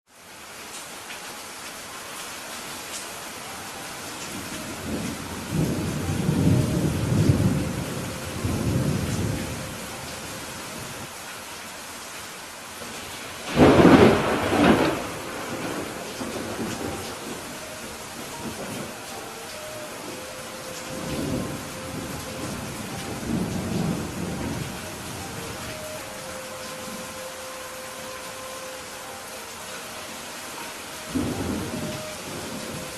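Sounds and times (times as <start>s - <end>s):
steady rain hissing: 0.1s - 32.9s
rolling thunder rumble: 4.4s - 11.0s, 13.4s - 26.2s, 31.0s - 32.9s.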